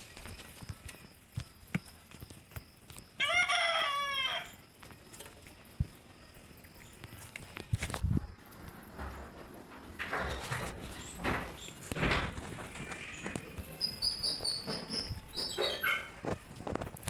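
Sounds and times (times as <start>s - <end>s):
faint footsteps on a path: 10.7s - 17.0s.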